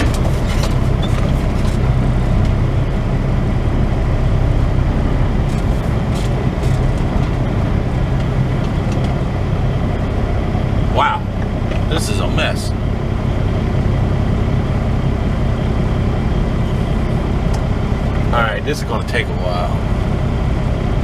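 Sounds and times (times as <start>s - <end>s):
diesel truck engine humming: 0.0s - 21.0s.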